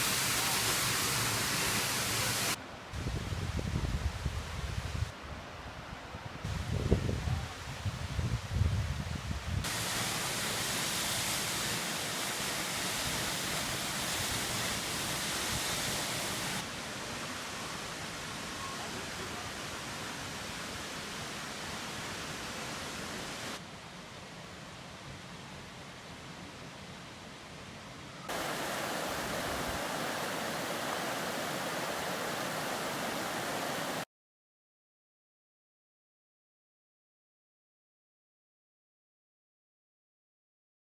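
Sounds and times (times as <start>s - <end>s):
waterfall rushing: 0.0s - 2.6s, 9.7s - 23.6s, 28.3s - 34.1s.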